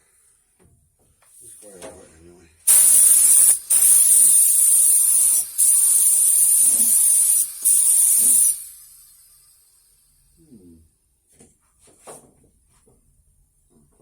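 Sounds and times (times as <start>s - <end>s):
paint sprayer hissing: 2.7s - 9.8s.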